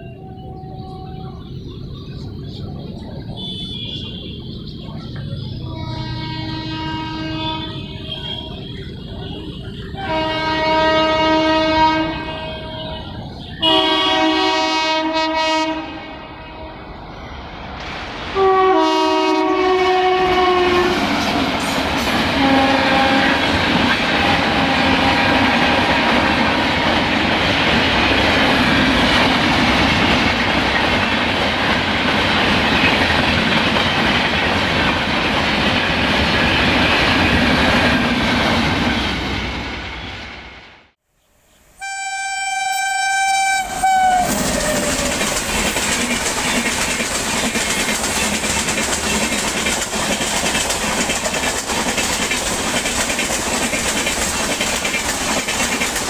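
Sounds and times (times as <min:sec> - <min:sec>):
train horn blasts: 0:03.4 - 0:04.5, 0:05.7 - 0:16.9, 0:18.4 - 0:21.2, 0:22.3 - 0:23.5, 0:24.1 - 0:25.7, 0:41.8 - 0:45.0
train wheels clattering over rail joints: 0:44.3 - 0:56.0.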